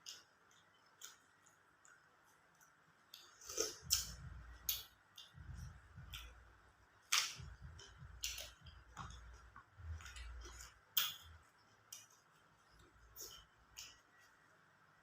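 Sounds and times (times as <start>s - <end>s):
person chewing: 0.0s - 6.4s, 7.0s - 14.4s
crisp clicks and smacks: 7.1s - 14.4s.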